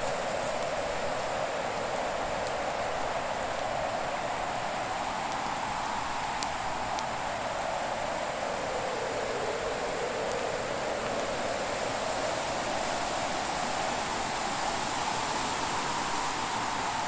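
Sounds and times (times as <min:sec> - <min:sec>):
burning wood crackles: 0:00.0 - 0:13.1.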